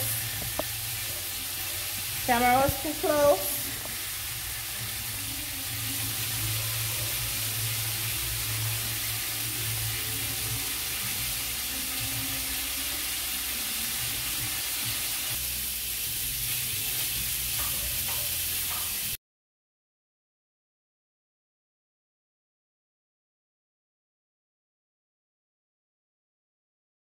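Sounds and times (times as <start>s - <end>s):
food sizzling in a pot: 0.0s - 19.2s.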